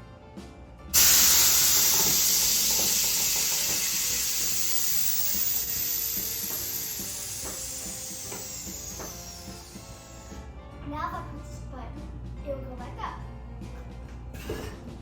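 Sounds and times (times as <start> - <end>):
air suspension hiss: 1.0 - 10.4.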